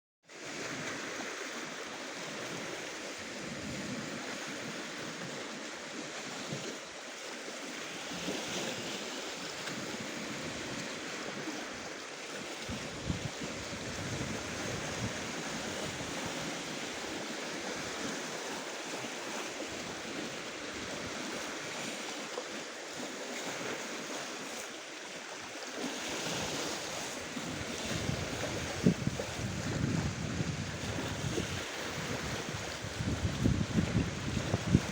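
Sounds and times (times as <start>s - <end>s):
surf washing onto shore: 0.3s - 34.9s
wind buffeting microphone: 9.6s - 21.8s, 26.2s - 34.9s.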